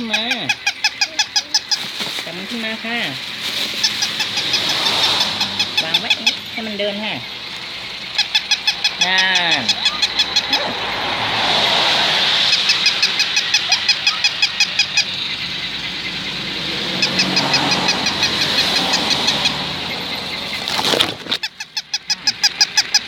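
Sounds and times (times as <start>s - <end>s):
toy dog clicking yaps: 0.0s - 1.8s, 8.1s - 10.7s, 12.6s - 15.1s, 21.4s - 23.0s.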